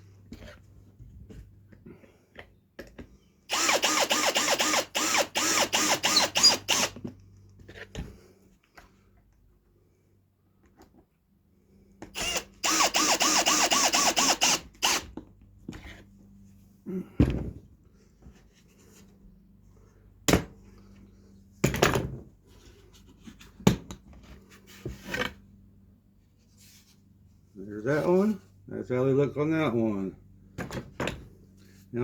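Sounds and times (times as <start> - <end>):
power drill driving screw: 3.5 - 7.0, 12.2 - 15.1.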